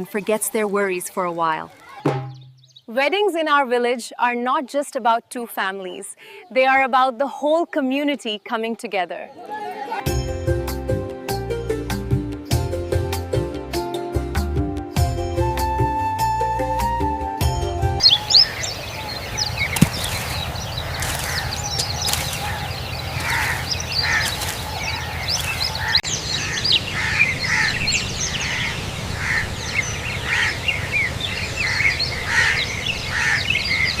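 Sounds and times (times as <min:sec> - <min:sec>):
many birds chirping: 0:01.8 - 0:03.0, 0:18.0 - 0:34.0.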